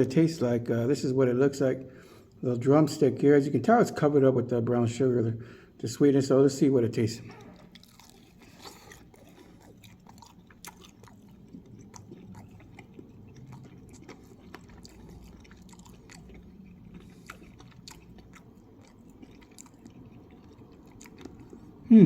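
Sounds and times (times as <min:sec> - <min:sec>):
person chewing crispy chicken: 0:07.4 - 0:21.9.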